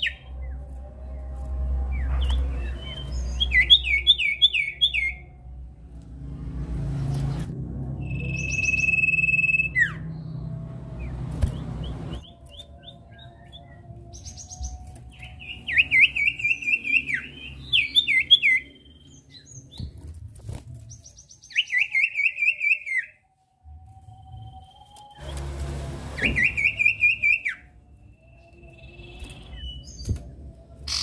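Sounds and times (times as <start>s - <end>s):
bird whistling and chirping: 0.0s - 0.3s, 1.9s - 5.2s, 8.0s - 10.3s, 11.4s - 19.9s, 21.0s - 23.2s, 26.2s - 31.0s
low hum: 0.0s - 21.1s, 23.2s - 31.0s.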